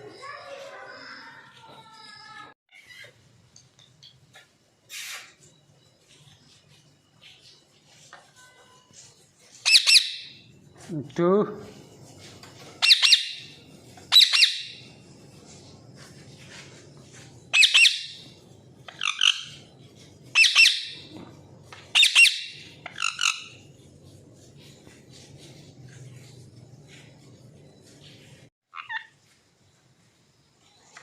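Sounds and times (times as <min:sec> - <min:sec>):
parrots squawking: 0:09.6 - 0:10.4, 0:12.8 - 0:14.8, 0:17.5 - 0:18.3, 0:18.9 - 0:19.7, 0:20.4 - 0:21.1, 0:21.9 - 0:23.7, 0:28.7 - 0:29.2.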